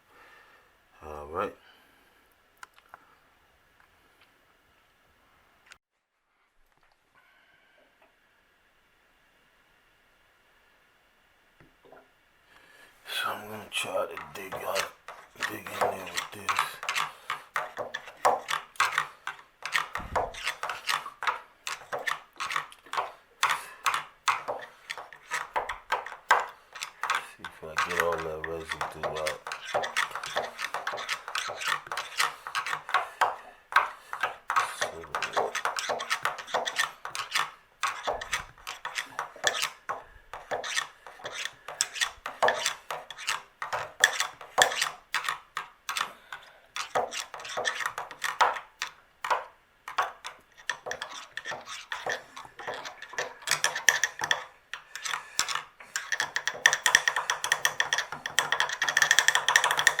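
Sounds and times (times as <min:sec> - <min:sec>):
hand tool scraping inside valve: 0:13.2 - 1:00.0.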